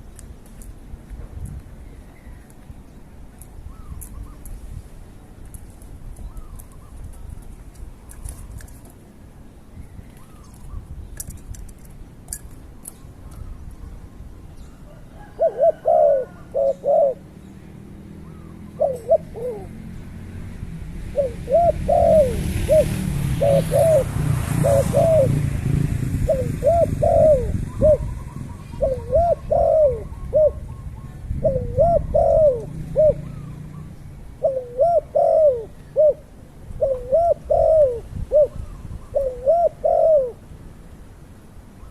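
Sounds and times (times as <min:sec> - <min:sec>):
bird calling: 0:12.8 - 0:17.3, 0:18.2 - 0:19.8, 0:21.2 - 0:25.4, 0:26.3 - 0:40.4.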